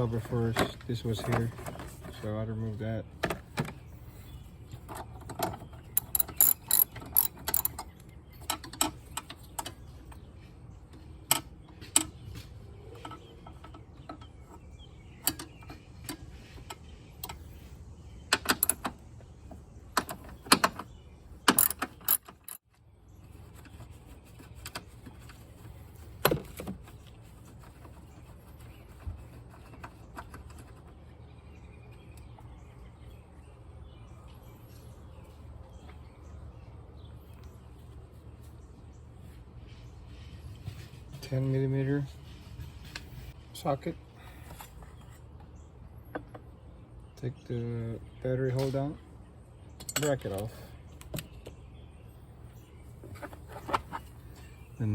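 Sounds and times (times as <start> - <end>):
socket ratchet clicking: 6.0 - 7.9.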